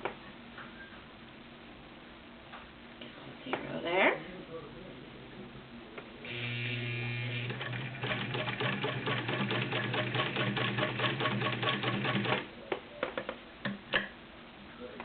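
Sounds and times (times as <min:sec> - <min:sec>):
sewing machine motor whine: 0:06.3 - 0:12.4
sewing needle rapid ticking: 0:07.7 - 0:12.4.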